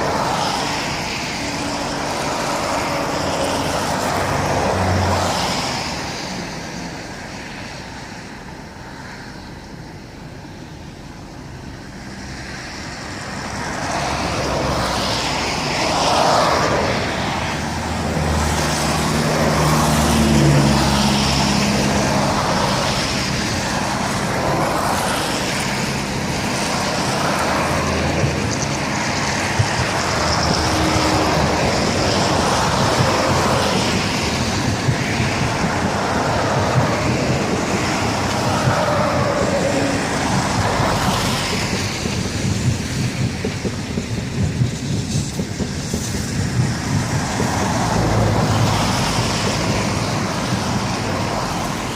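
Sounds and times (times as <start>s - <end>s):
train rumbling: 0.0s - 51.9s.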